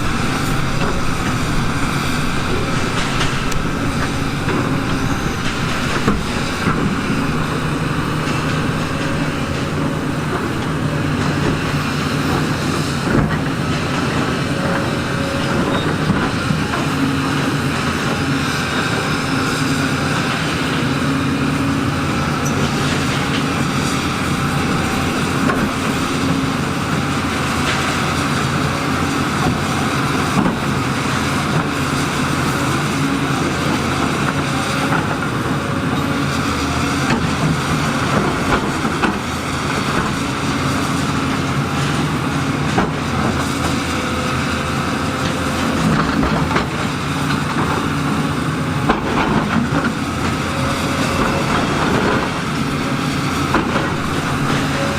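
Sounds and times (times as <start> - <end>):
clanks of metal and rock: 0.0 - 17.0, 48.8 - 54.9
heavy diesel engine running: 0.0 - 54.9.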